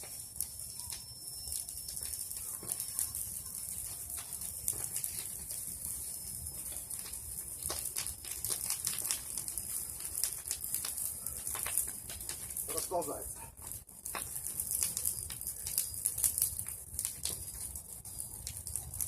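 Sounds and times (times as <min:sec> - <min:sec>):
bonfire crackling and popping: 0:00.0 - 0:19.0
fire hissing: 0:00.0 - 0:19.0.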